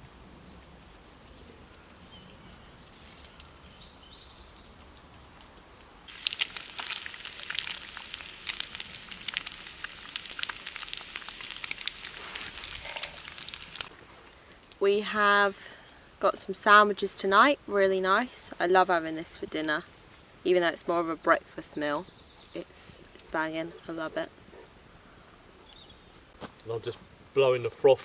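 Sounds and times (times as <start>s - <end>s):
food sputtering and crackling: 6.1s - 13.9s.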